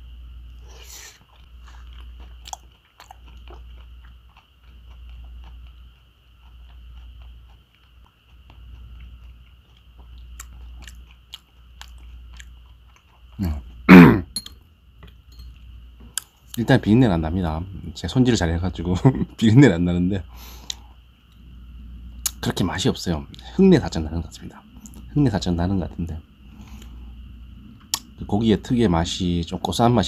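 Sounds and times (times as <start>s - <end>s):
person chewing: 0.7s - 14.4s, 15.0s - 16.6s, 20.3s - 21.5s, 22.1s - 22.4s, 24.7s - 25.1s, 26.5s - 28.2s.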